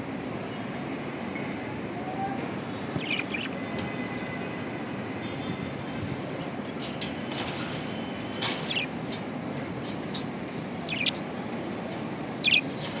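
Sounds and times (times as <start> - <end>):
budgerigars chirping: 3.0 - 3.6, 8.6 - 8.9, 10.9 - 11.2, 12.4 - 12.8.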